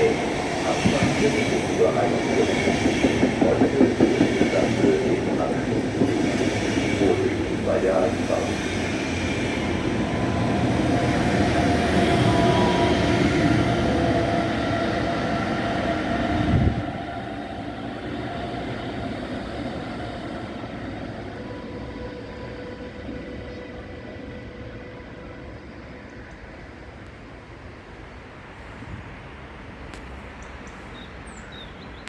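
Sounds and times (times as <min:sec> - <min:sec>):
train rumbling on rails: 0:00.0 - 0:32.0.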